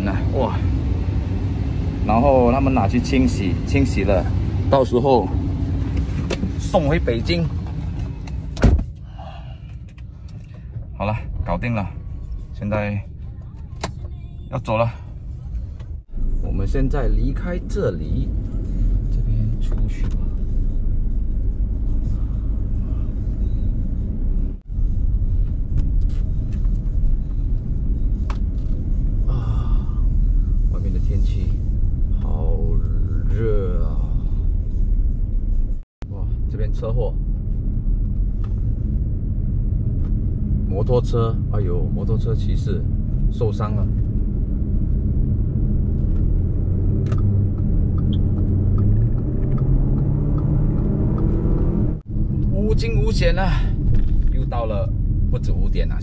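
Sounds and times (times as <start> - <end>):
car engine driving: 0.0 - 56.0
road rumble: 0.0 - 56.0
car cabin rumble: 37.2 - 56.0.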